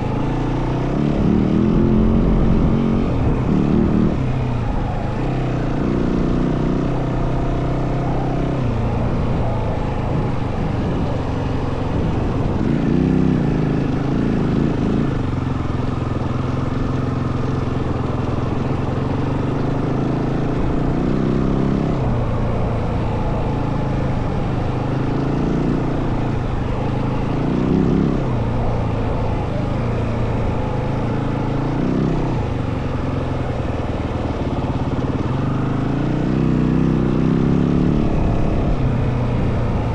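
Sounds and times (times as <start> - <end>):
dirt bike engine revving: 0.0 - 39.9
wind buffeting microphone: 8.2 - 16.3.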